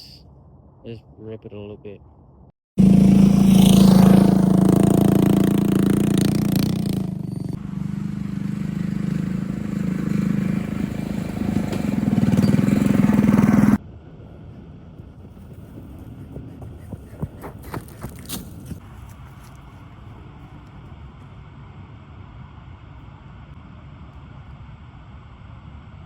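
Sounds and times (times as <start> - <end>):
mini bike engine revving: 2.8 - 13.8.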